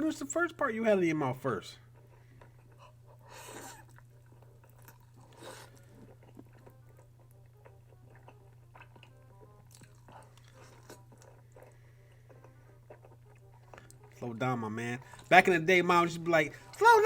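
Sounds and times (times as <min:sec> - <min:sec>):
person chewing: 0:02.0 - 0:14.2, 0:15.0 - 0:15.3.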